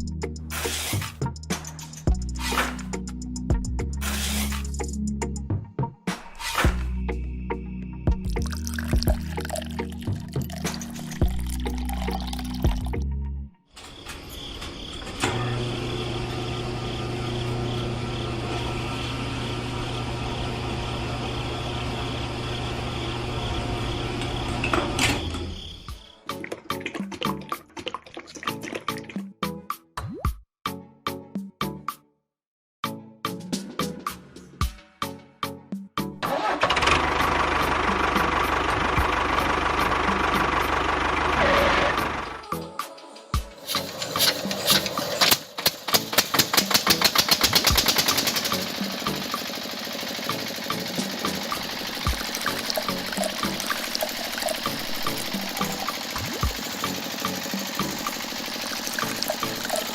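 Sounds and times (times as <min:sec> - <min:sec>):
small engine running: 0:15.2 - 0:25.9, 0:36.3 - 0:42.5, 0:43.7 - 0:59.9.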